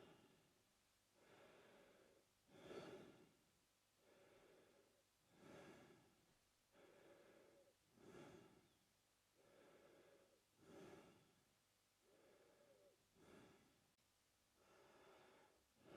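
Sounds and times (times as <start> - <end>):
man breathing through his mouth: 1.2 - 3.3, 4.0 - 8.8, 9.4 - 11.4, 12.0 - 13.8, 14.6 - 15.9.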